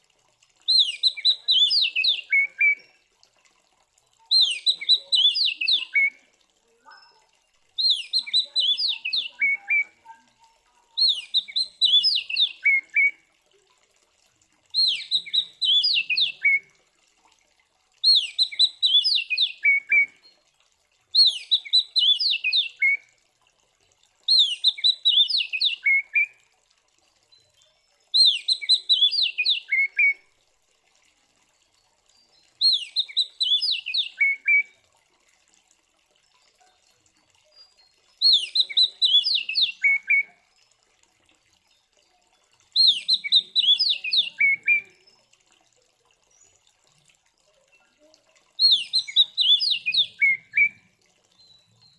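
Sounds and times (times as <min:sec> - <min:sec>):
bird singing whistled phrases: 0:00.7 - 0:02.9, 0:04.3 - 0:06.2, 0:07.8 - 0:10.2, 0:11.0 - 0:13.2, 0:14.8 - 0:16.7, 0:18.0 - 0:20.4, 0:21.2 - 0:23.0, 0:24.3 - 0:26.4, 0:28.2 - 0:30.2, 0:32.6 - 0:34.8, 0:37.8 - 0:40.4, 0:42.8 - 0:45.2, 0:48.6 - 0:50.8.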